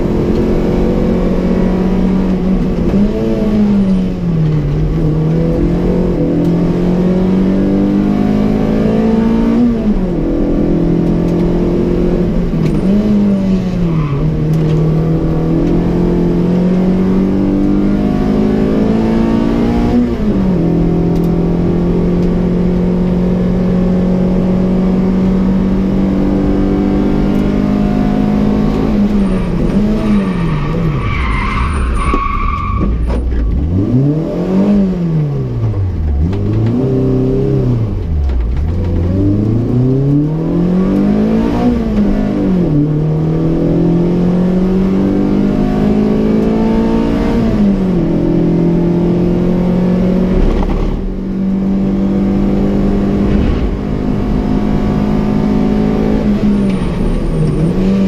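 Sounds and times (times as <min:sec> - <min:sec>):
car engine revving: 0:00.0 - 0:58.0
tyre squeal: 0:29.1 - 0:33.4, 0:56.6 - 0:58.0.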